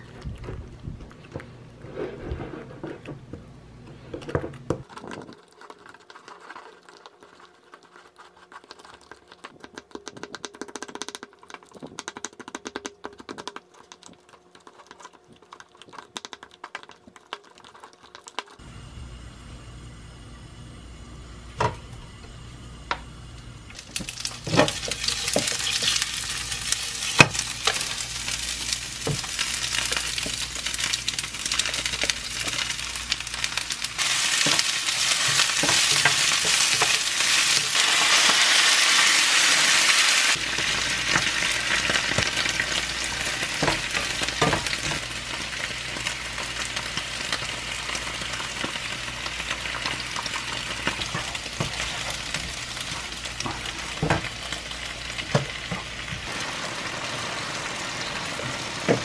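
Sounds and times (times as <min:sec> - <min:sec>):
food sizzling in a frying pan: 0:23.7 - 0:59.0.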